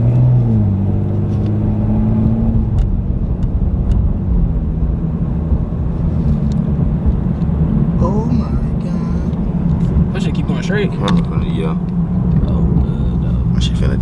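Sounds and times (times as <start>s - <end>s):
car engine hum: 0.0s - 14.0s
road rumble: 0.0s - 14.0s.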